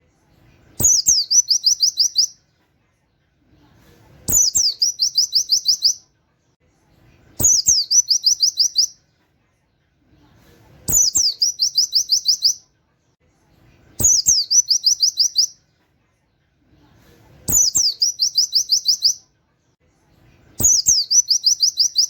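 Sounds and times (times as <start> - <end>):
small bird singing: 0.5 - 2.5, 4.2 - 6.1, 7.1 - 9.1, 10.8 - 12.7, 13.7 - 15.7, 17.4 - 19.3, 20.4 - 22.0.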